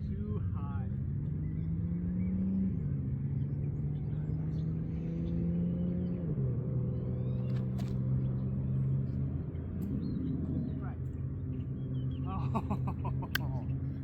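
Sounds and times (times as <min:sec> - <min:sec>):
vehicle engine humming: 0:00.0 - 0:14.0
sharp clicks: 0:13.2 - 0:13.6.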